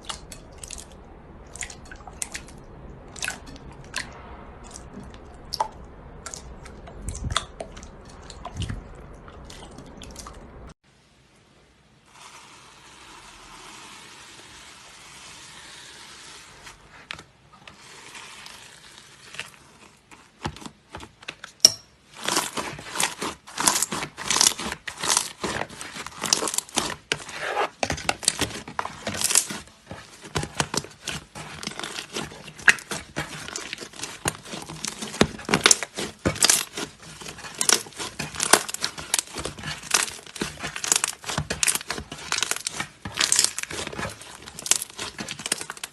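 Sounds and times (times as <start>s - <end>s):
slime rustling: 12.0s - 45.9s
slime crackling and popping: 21.6s - 45.9s.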